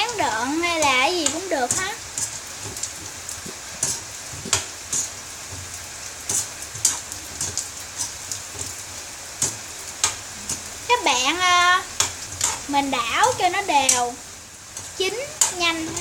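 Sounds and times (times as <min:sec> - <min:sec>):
meatballs sizzling in hot oil: 0:00.0 - 0:16.0
spattering oil pops: 0:01.2 - 0:08.8.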